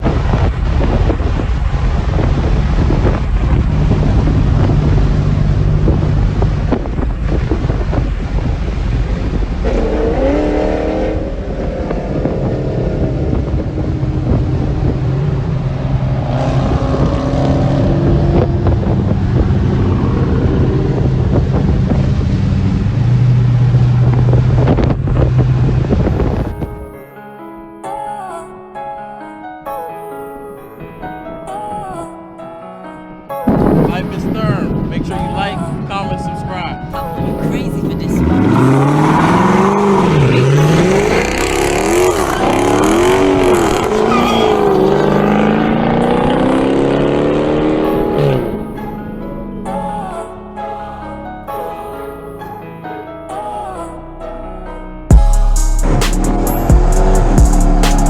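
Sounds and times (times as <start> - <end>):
car engines revving: 0.0 - 26.5, 37.4 - 49.8, 55.4 - 58.0.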